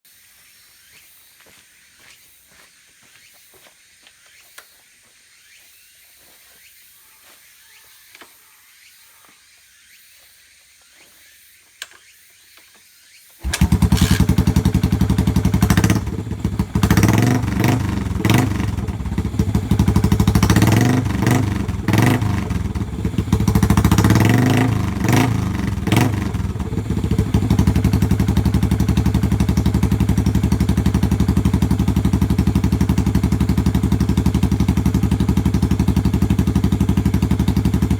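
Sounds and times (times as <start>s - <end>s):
motorcycle engine running: 13.4s - 37.9s.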